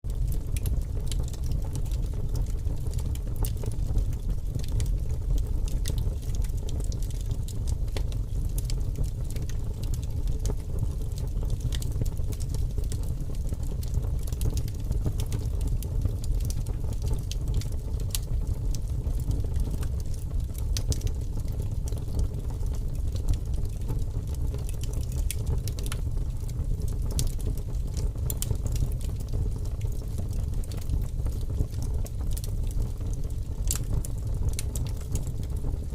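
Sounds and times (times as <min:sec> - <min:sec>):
fire crackling and popping: 0:00.1 - 0:35.9.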